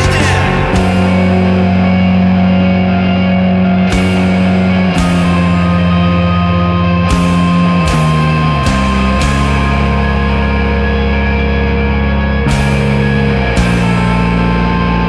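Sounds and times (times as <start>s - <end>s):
cymbal crashes: 0.0s - 2.4s
guitar and bass chords: 0.0s - 15.0s
rock band playing loud: 0.0s - 15.0s.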